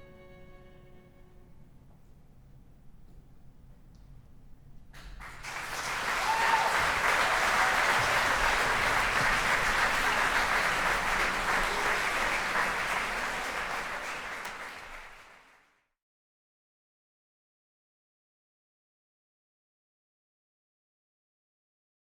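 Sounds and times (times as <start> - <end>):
audience applauding: 5.0 - 15.6.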